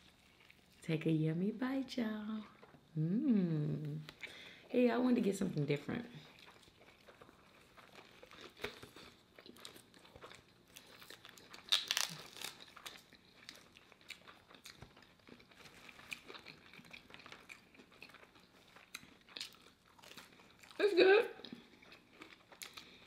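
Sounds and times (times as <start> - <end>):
person chewing a burger: 0.0 - 0.8, 2.5 - 3.1, 6.2 - 20.8, 21.4 - 23.0
paper packet crinkling: 11.2 - 12.9.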